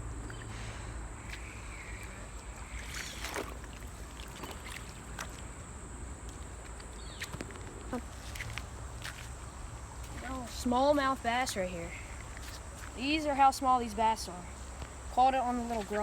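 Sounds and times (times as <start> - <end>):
low steady rumble: 0.0 - 7.1
water splashes: 0.2 - 6.5.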